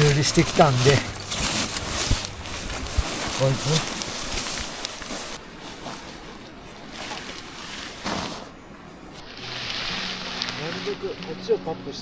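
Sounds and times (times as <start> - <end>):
rain and wind hiss: 0.0 - 5.6, 9.2 - 12.0.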